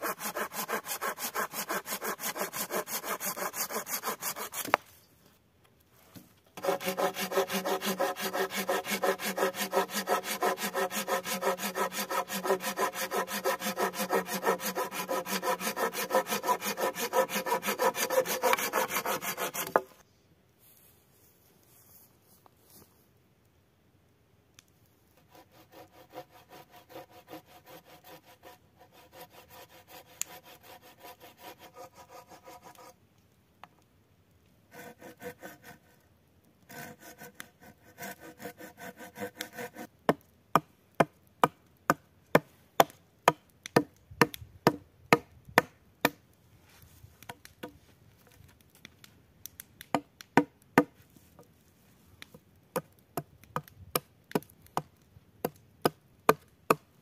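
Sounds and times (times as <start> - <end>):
hand saw cutting wood: 0.0 - 4.8, 6.6 - 20.0, 25.2 - 32.9, 34.7 - 36.0, 36.7 - 39.9.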